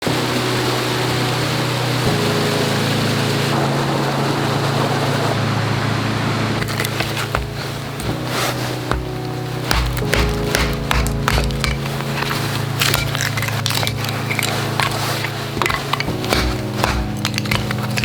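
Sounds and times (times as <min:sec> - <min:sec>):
sharp clicks and knocks: 0:08.9 - 0:18.0.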